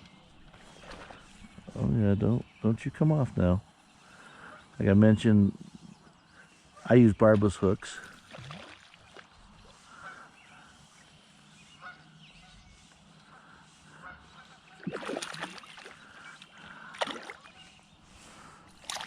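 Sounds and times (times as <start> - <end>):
geese honking: 9.7 - 11.0, 11.6 - 14.9.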